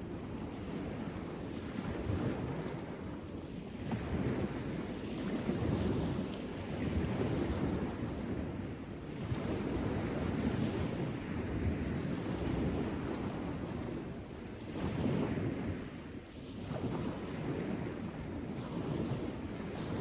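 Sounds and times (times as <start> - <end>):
wind buffeting microphone: 16.6 - 20.0.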